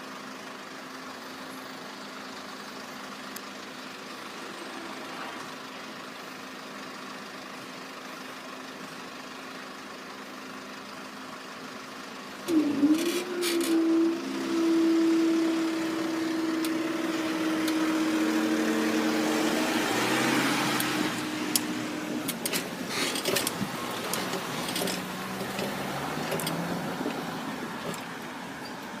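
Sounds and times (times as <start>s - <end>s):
steady engine hum: 0.0s - 29.0s
traffic noise: 0.0s - 29.0s
clicks: 20.8s - 27.2s.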